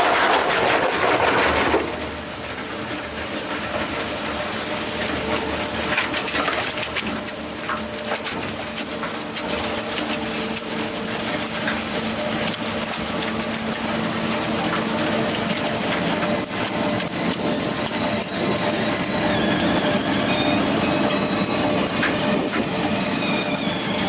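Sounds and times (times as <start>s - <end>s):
wood crackling as chipped: 0.0s - 23.9s
wood chipper engine hum: 0.0s - 24.0s.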